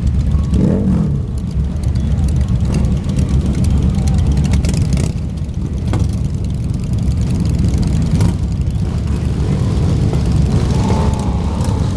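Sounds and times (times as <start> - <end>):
motorcycles riding past: 8.2 - 11.9.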